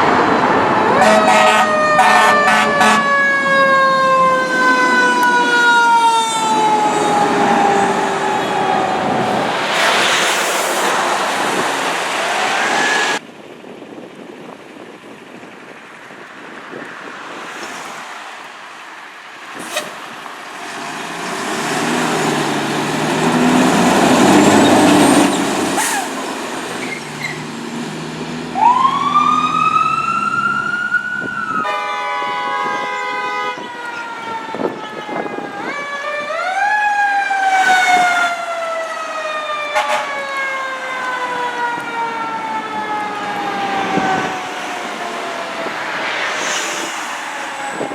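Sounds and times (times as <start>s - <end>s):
electronic siren wailing: 0.4s - 9.6s, 28.6s - 31.8s, 33.5s - 47.9s
horn blast: 1.0s - 3.2s, 31.6s - 33.6s, 39.8s - 40.2s
diesel engine rumbling: 19.4s - 31.6s.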